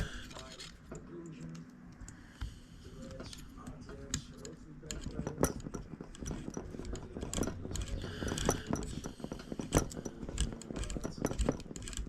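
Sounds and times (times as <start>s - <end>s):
hand tool clicks and scrapes: 3.0s - 12.0s.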